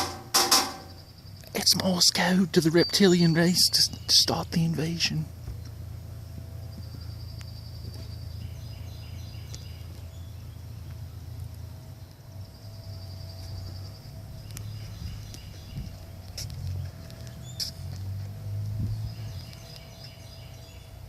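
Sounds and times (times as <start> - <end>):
woodpecker drumming on metal: 0.0 - 1.1.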